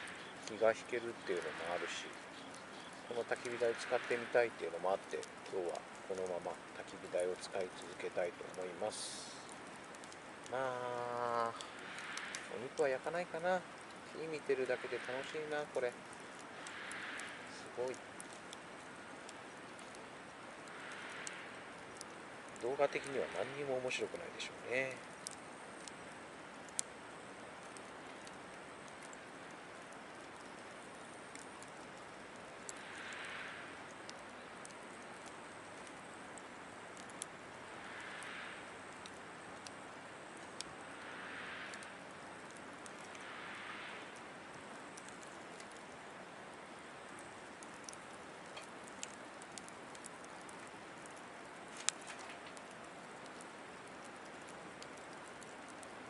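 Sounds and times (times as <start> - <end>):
campfire crackling: 0.0 - 56.0
fire popping: 0.0 - 56.0.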